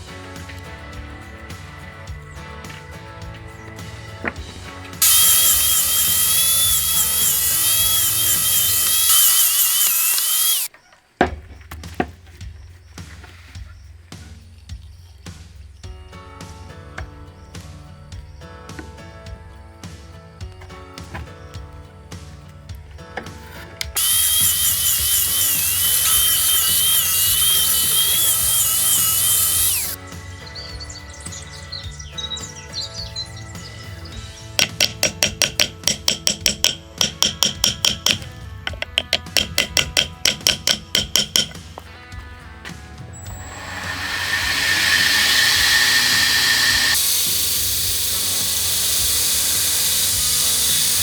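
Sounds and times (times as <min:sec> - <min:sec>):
background music: 0:00.0 - 0:10.7, 0:11.6 - 0:51.0
power grinder on steel: 0:05.0 - 0:10.7, 0:24.0 - 0:30.0, 0:43.2 - 0:51.0.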